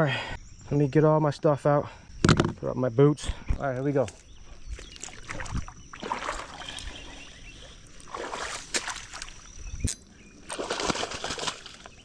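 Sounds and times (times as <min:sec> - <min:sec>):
water sloshing and splashing: 0:04.7 - 0:09.6, 0:10.4 - 0:12.0.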